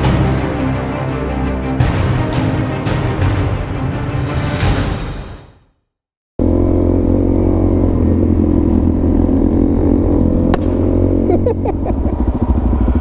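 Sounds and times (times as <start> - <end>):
motorcycle engine running: 6.4 - 13.0.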